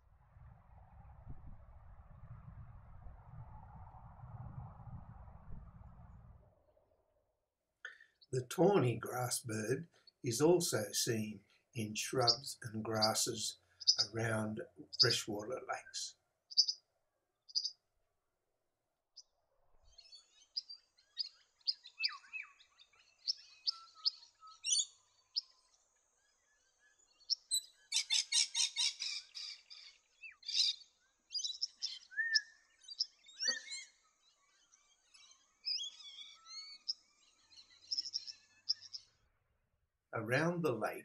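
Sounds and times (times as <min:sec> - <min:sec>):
bird chipping and whistling: 0:16.5 - 0:16.8, 0:20.0 - 0:25.5, 0:27.2 - 0:34.0, 0:35.1 - 0:39.1.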